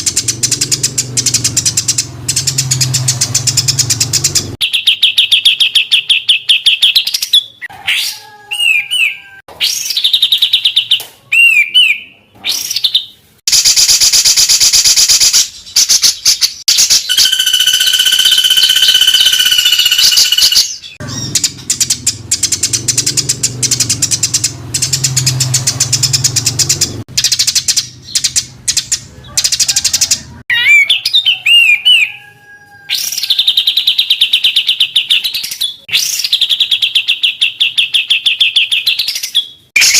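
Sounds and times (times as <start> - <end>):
songbird harsh rapid notes: 0.0 - 6.8, 12.5 - 32.2.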